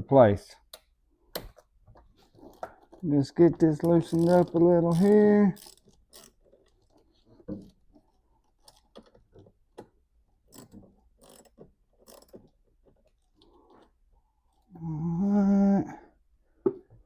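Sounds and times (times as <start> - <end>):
socket ratchet clicking: 3.9 - 7.0, 9.8 - 12.6.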